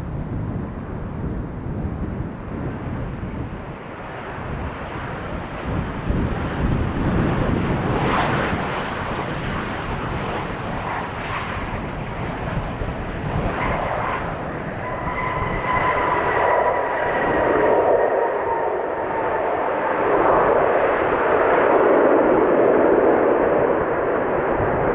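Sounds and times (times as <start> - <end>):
jet airliner engines rumbling: 0.0 - 24.9
steady high whine: 12.7 - 24.9.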